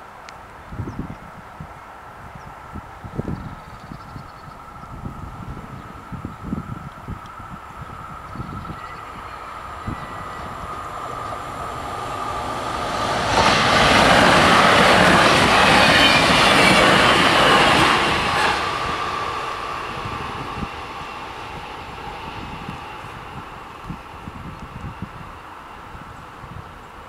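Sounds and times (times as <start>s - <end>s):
electric train passing: 1.7s - 27.0s.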